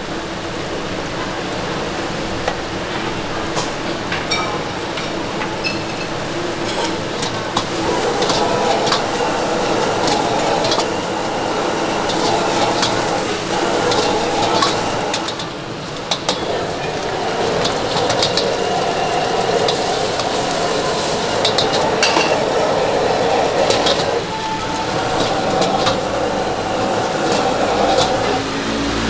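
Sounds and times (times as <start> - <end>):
food frying in a pan: 0.0 - 29.0
metal spatula scraping: 17.5 - 28.4.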